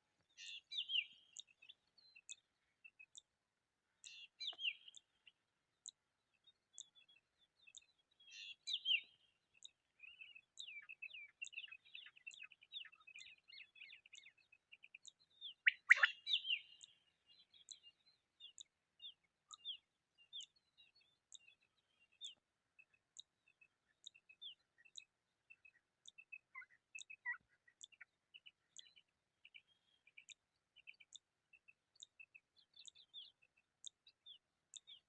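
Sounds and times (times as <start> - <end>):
quail chirping: 15.6 - 16.9.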